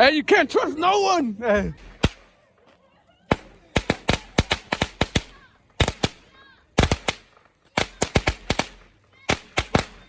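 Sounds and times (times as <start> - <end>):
firecrackers banging: 3.3 - 6.2.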